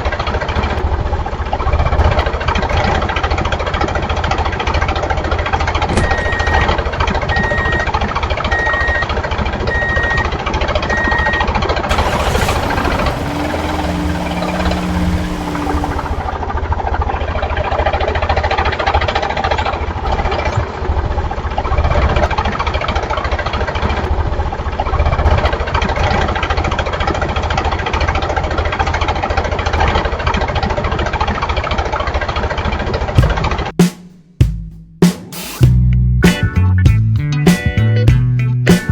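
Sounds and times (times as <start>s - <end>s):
tractor engine chugging: 11.9s - 16.4s.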